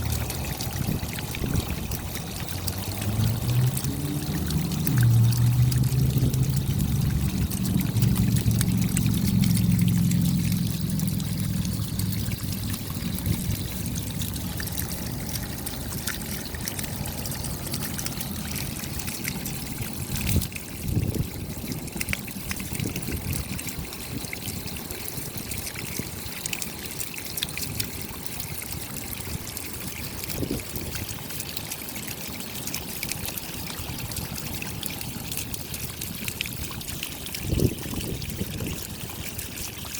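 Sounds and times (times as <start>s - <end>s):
low rumble: 0.1s - 20.3s
rain falling: 2.0s - 19.3s.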